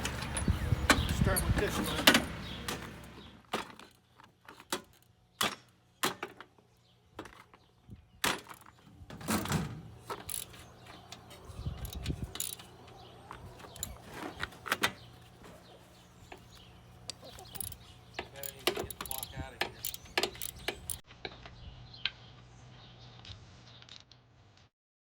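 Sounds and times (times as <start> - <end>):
metallic clicks of hand tools: 10.1 - 12.7, 17.1 - 21.0.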